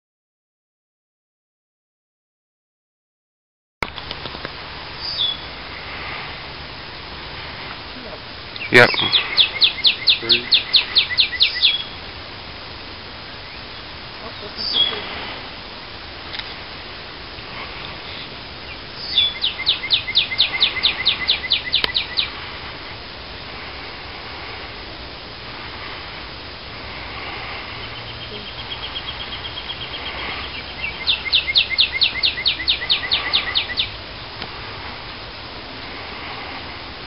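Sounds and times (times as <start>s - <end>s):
outdoor background noise: 3.8s - 37.0s
songbird whistling: 5.0s - 5.5s, 8.6s - 12.0s, 14.6s - 15.0s, 18.1s - 22.3s, 27.8s - 34.0s.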